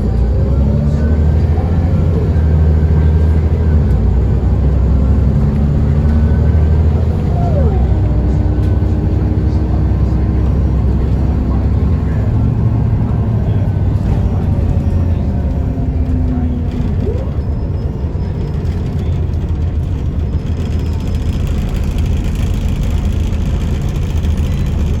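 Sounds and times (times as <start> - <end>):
bus diesel engine running: 0.0 - 25.0
road and driveline noise: 0.0 - 25.0.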